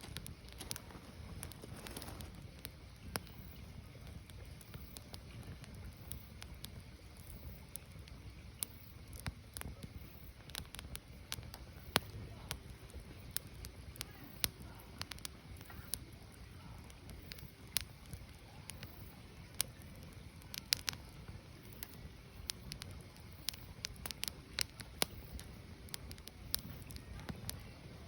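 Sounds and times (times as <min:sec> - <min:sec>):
fire rumble: 0:00.0 - 0:28.0
firewood crackling and popping: 0:00.0 - 0:28.0.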